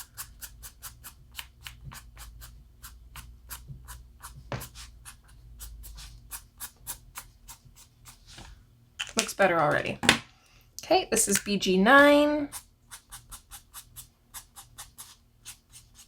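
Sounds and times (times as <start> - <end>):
marker scratching on paper: 1.8 - 8.4, 12.5 - 16.0.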